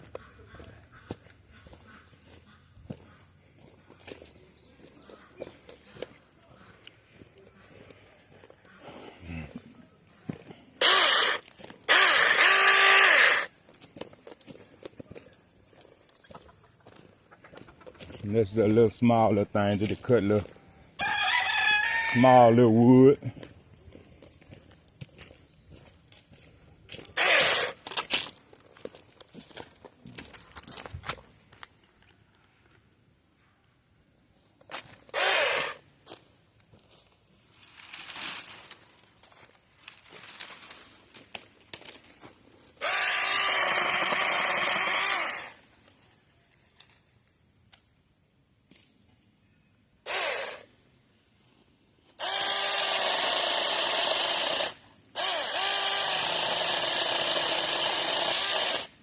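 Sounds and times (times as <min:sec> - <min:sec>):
mini chainsaw motor whining: 0:10.8 - 0:13.5, 0:27.2 - 0:28.0, 0:35.1 - 0:35.8, 0:42.8 - 0:45.6, 0:50.0 - 0:50.7, 0:52.2 - 0:59.0.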